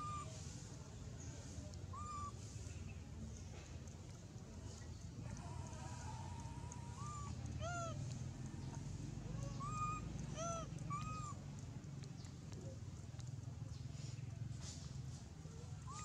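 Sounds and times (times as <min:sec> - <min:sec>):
baby monkey crying: 0:01.9 - 0:02.3, 0:05.4 - 0:08.0, 0:09.3 - 0:11.4.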